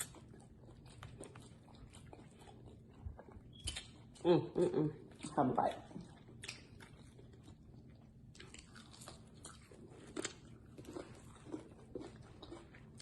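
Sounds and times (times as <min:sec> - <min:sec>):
crunching and chewing food: 0:00.0 - 0:13.0.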